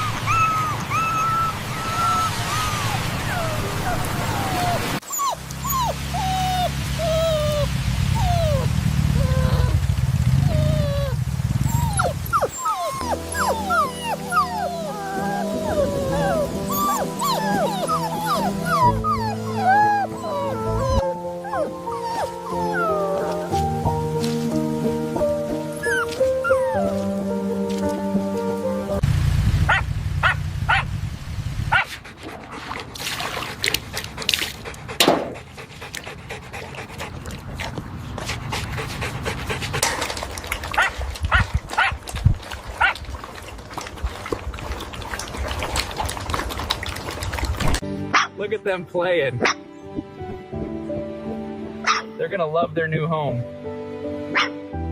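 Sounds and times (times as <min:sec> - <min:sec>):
puppies whimpering and yelping: 0:00.0 - 0:09.8, 0:10.4 - 0:23.8, 0:25.5 - 0:27.0
dogs panting: 0:10.4 - 0:24.0, 0:31.7 - 0:47.8
background music: 0:12.5 - 0:29.0, 0:47.8 - 0:54.9.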